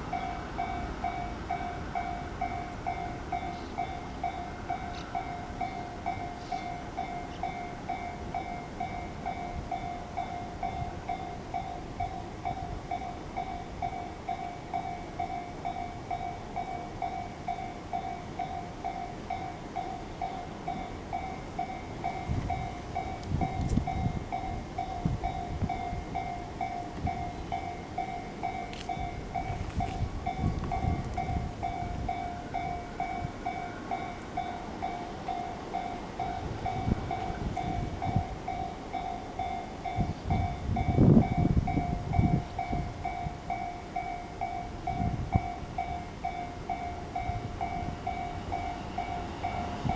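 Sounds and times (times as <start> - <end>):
train rumble: 0.0 - 49.9.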